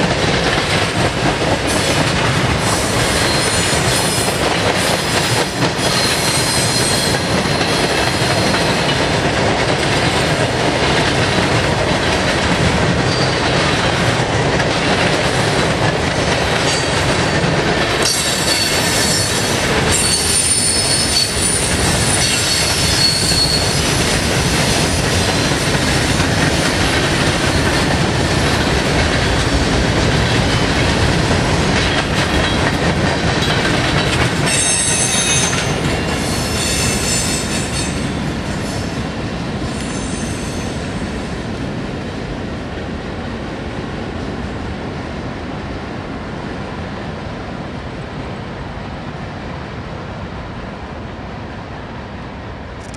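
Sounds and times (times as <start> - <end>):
steel wheel squeal: 4.9 - 8.6, 18.0 - 23.8, 34.5 - 38.0.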